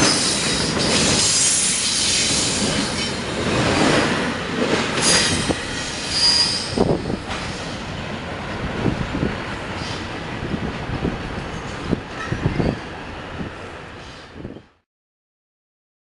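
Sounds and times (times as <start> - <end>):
train wheels squealing: 0.0 - 4.0, 5.0 - 7.8
railroad cars rumbling past: 0.0 - 14.8.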